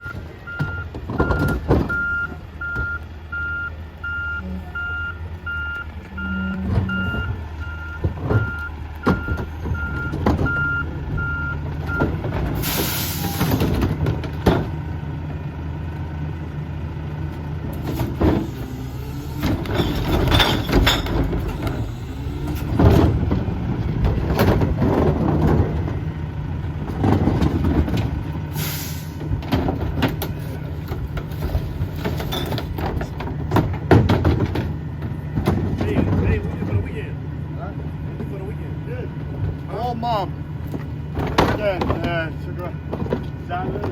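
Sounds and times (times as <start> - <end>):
reversing alarm beeping: 0.0 - 12.1
garbage truck engine running: 0.0 - 43.9
air brake hiss: 12.6 - 13.6, 28.5 - 29.2.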